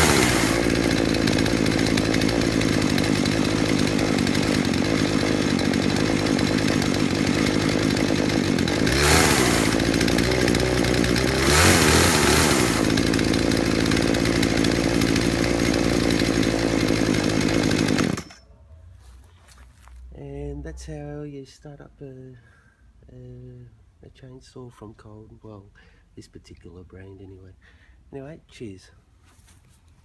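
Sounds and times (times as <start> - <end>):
chainsaw idling and revving: 0.0 - 18.4.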